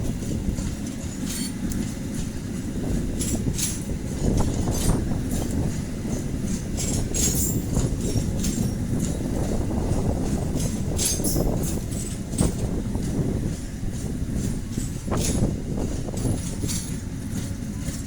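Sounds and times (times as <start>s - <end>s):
train rumbling past: 0.0s - 18.0s
wheels clacking over rail joints: 0.0s - 18.0s.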